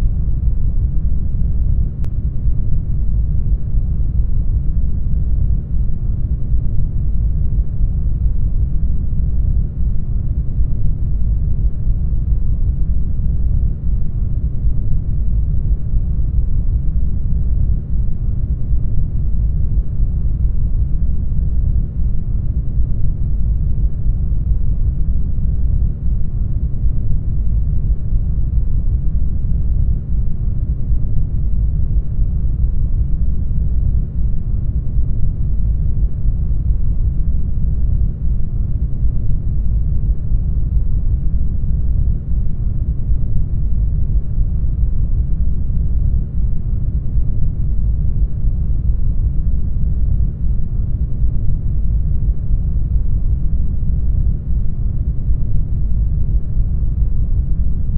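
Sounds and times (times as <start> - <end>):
deep rumbling brown noise: 0.0 - 57.9.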